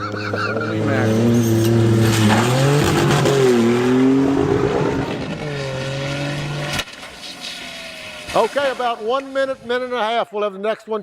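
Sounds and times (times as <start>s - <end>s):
car engine revving high: 0.3s - 6.9s.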